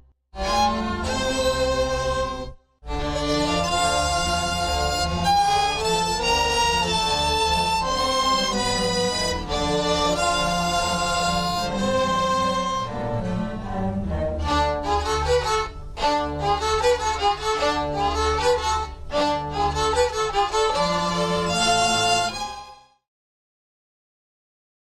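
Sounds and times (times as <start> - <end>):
string orchestra playing: 0.4 - 23.0.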